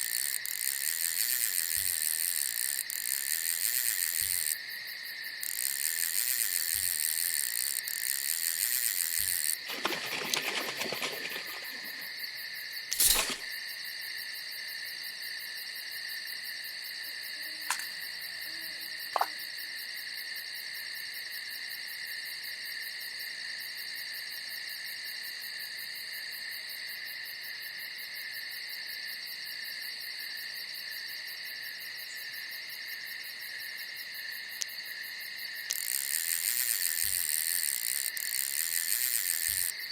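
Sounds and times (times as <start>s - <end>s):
crickets chirping: 0.0s - 39.9s
rustling: 12.9s - 13.5s.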